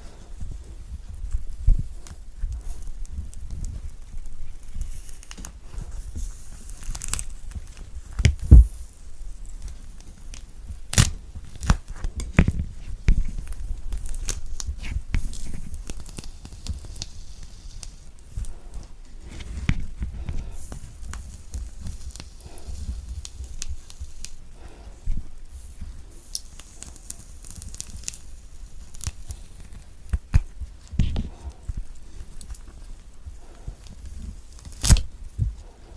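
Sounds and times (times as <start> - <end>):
loud thump: 8.4 - 8.8
orange peel tearing: 34.6 - 35.1.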